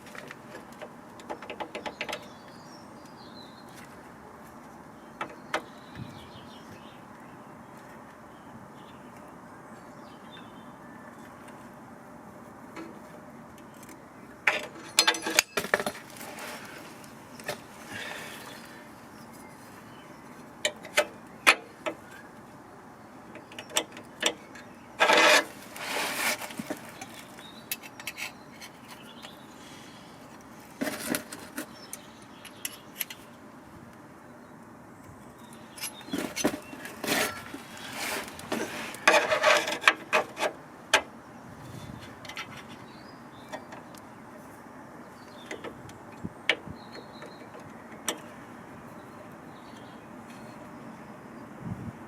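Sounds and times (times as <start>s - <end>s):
metal parts clinking and knocking: 14.5s - 16.0s
scraping or rustling: 14.6s - 18.3s, 25.0s - 27.4s, 30.7s - 31.8s, 36.0s - 40.6s.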